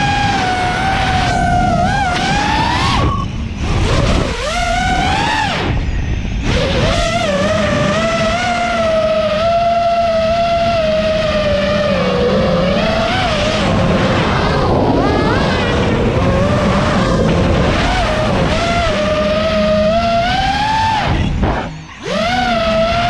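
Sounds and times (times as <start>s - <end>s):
drone propellers whining: 0.0s - 23.0s.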